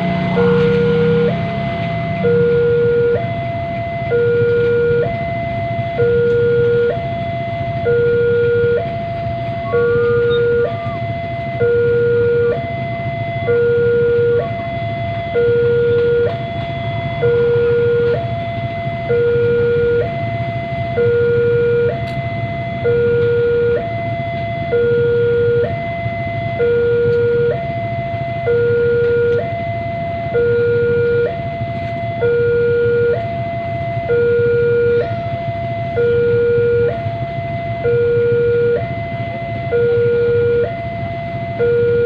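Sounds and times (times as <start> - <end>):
electronic two-tone siren: 0.0 - 42.0
low vehicle rumble: 0.0 - 42.0.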